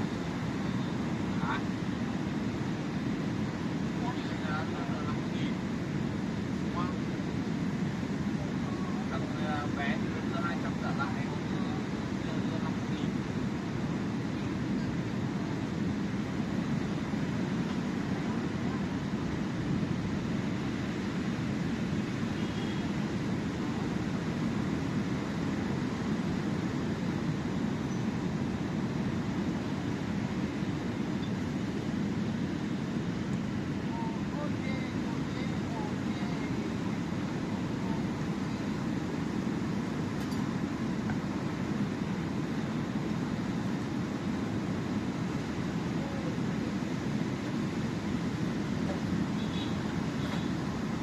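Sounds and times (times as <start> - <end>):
sea surf roaring: 0.0 - 51.0.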